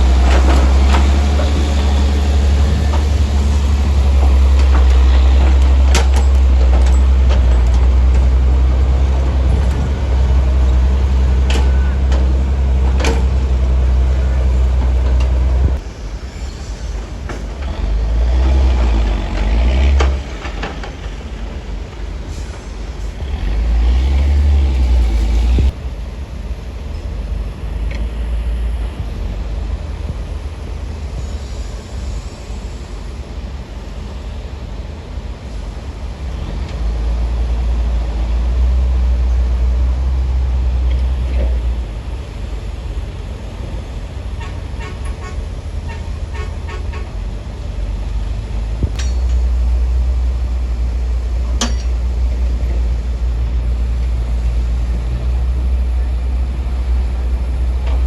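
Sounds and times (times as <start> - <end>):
diesel machinery engine rumble: 0.0 - 16.0, 16.9 - 31.3, 35.8 - 58.0.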